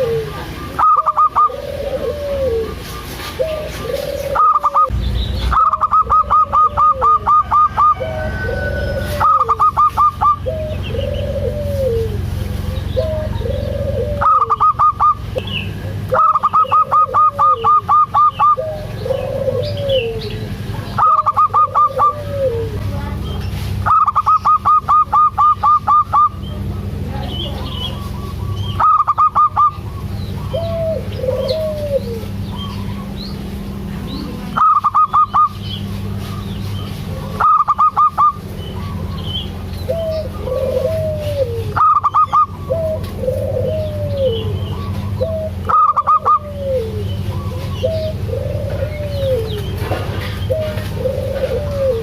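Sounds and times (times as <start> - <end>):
dove cooing: 0.0 - 52.0
steady low hum: 0.0 - 52.0.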